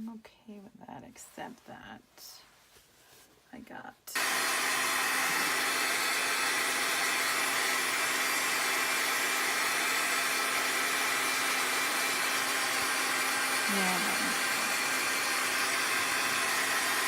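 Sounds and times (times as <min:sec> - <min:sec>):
hair dryer blowing: 0:04.1 - 0:17.0.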